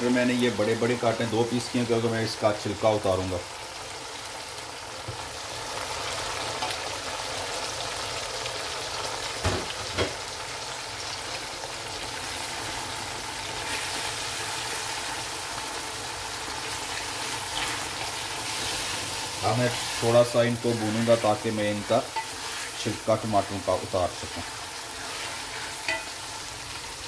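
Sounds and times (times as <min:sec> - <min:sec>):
vegetables sizzling in oil: 0:00.0 - 0:27.0
wooden spoon stirring: 0:16.6 - 0:26.1.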